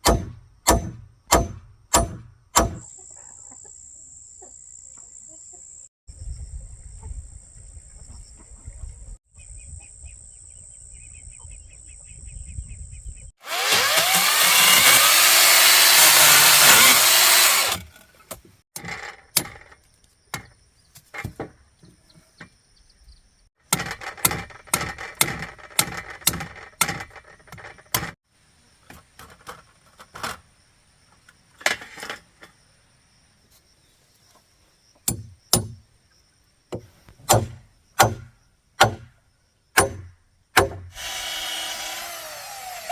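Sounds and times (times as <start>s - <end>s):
power tool cutting: 13.4s - 17.9s, 40.9s - 42.9s.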